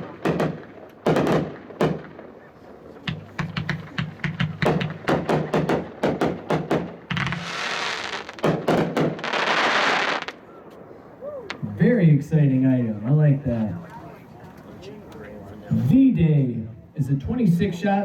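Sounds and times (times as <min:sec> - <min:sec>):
fireworks launch thumps and bangs: 0:00.0 - 0:10.8
fireworks hissing crackling burst: 0:07.1 - 0:10.4.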